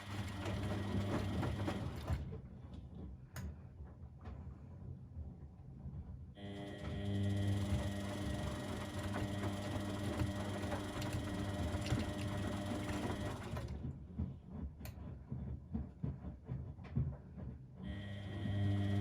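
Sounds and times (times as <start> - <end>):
washing machine motor hum: 0.0 - 3.1, 6.4 - 15.9, 17.8 - 19.0.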